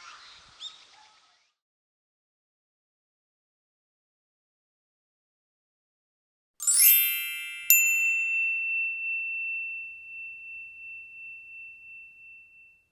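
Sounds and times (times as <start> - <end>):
bright chimes run: 6.6 - 12.7
ringing metallic strike: 6.6 - 12.7.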